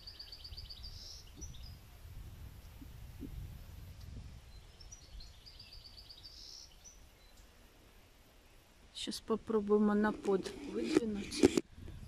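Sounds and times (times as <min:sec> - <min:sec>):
songbird trilling: 0:00.0 - 0:01.8, 0:04.5 - 0:07.4.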